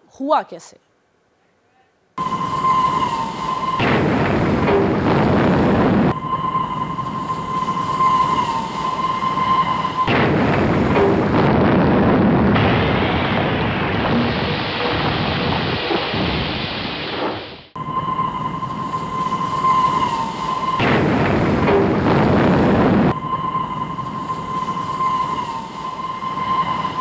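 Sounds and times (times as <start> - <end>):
heavy rumbling of rolling stock: 2.2 - 27.0.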